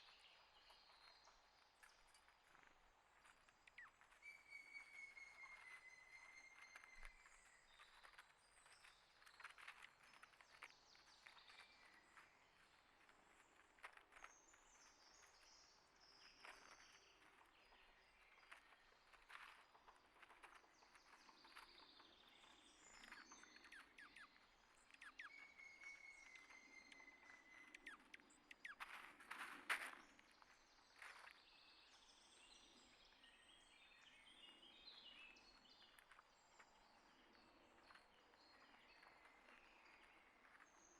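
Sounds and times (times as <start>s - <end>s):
thin whistled bird notes: 3.2s - 12.7s, 20.6s - 40.9s
birds chirping: 22.3s - 30.1s.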